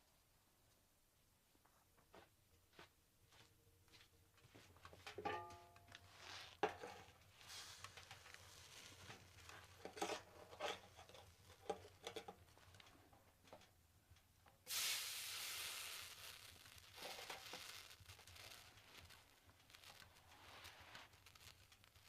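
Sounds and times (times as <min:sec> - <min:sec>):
rustling: 0:04.4 - 0:13.2, 0:16.2 - 0:22.0
sudden hiss: 0:07.3 - 0:09.1, 0:14.6 - 0:22.0.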